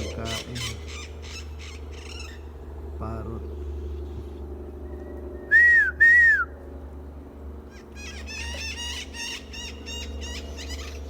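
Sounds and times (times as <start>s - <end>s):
parrots squawking: 0.0s - 2.5s, 7.7s - 11.0s.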